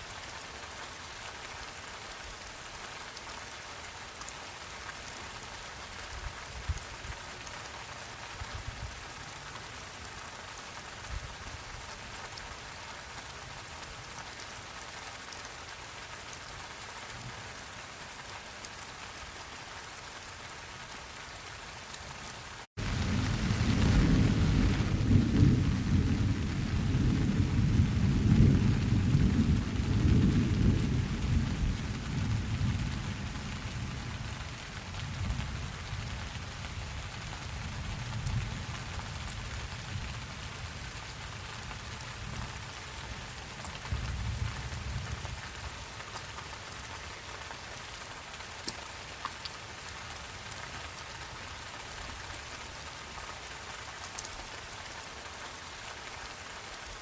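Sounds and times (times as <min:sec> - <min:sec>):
steady rain falling: 0:00.0 - 0:57.0
low rumble of thunder: 0:22.8 - 0:45.8.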